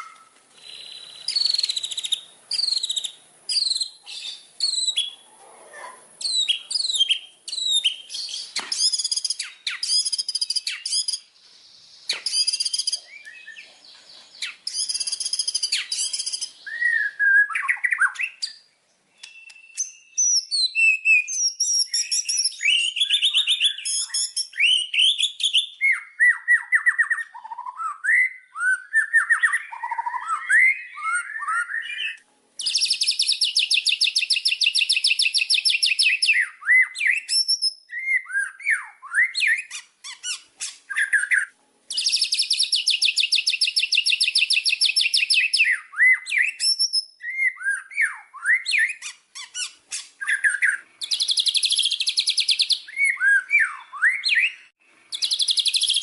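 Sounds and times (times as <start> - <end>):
fast repeated bird trill: 0.0 - 5.2, 6.2 - 11.3, 12.1 - 13.2, 14.4 - 17.0, 29.2 - 56.0
bird whistling and chattering song: 0.0 - 5.3, 6.2 - 11.3, 11.9 - 56.0.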